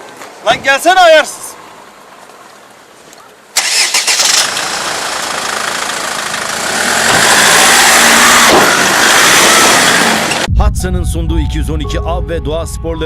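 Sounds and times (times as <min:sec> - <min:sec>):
car engine starting and accelerating: 0:03.6 - 0:10.5.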